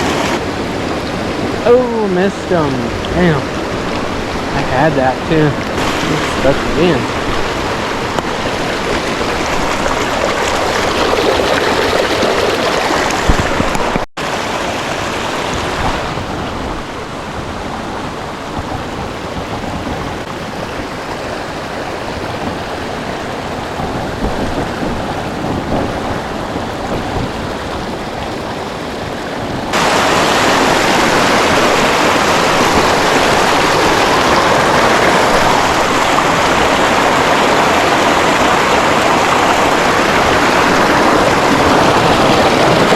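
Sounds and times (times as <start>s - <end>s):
creek water rushing: 0.0s - 42.9s.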